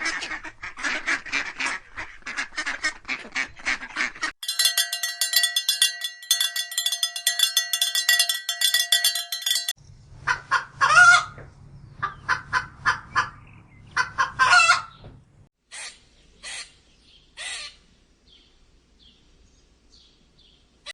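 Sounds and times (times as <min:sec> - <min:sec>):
chickens clucking: 0:12.0 - 0:14.9
chicken squawks: 0:14.0 - 0:14.9.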